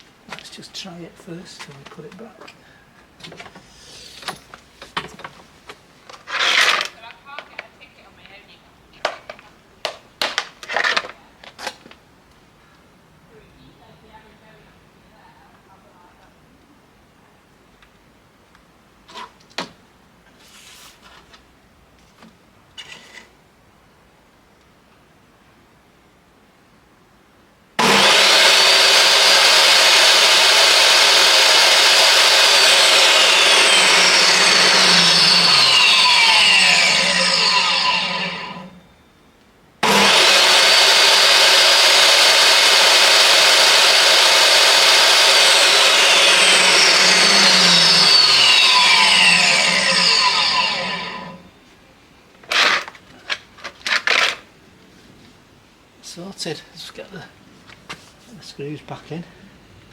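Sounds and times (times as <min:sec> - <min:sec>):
saw winding down whine: 0:27.8 - 0:38.8, 0:39.8 - 0:51.5
table saw motor running: 0:27.8 - 0:38.8, 0:39.8 - 0:51.4.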